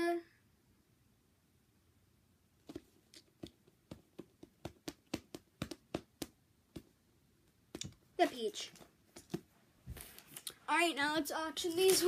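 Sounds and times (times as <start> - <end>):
hands tapping squishy toys: 2.7 - 7.0, 7.7 - 8.0.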